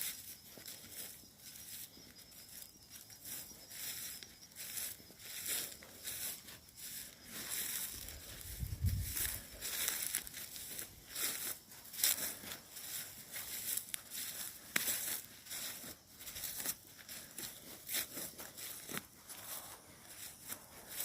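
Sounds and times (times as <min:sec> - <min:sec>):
footsteps crunching through dry leaves: 0:00.0 - 0:21.0.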